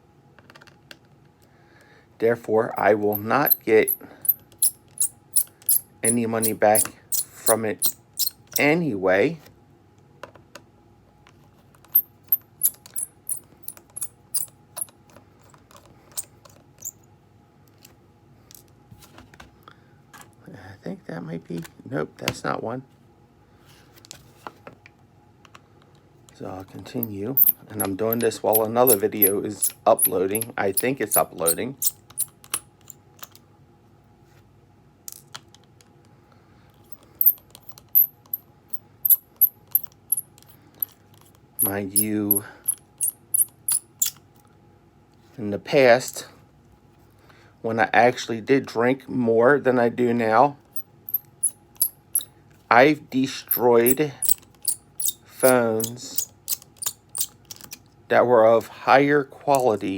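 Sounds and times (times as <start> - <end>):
screwdriver and screws clinking: 2.8 - 8.7, 11.9 - 14.9, 27.0 - 32.6, 36.9 - 38.4, 39.1 - 41.0, 41.6 - 44.2, 51.1 - 52.3, 53.5 - 57.8.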